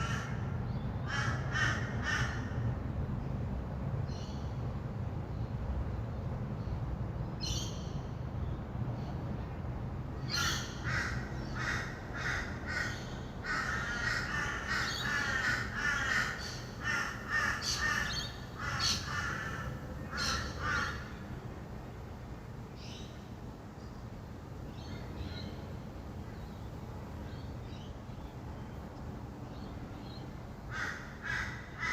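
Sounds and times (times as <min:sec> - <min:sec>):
distant traffic hum: 0:00.0 - 0:31.9
lorikeets screeching: 0:10.2 - 0:21.1.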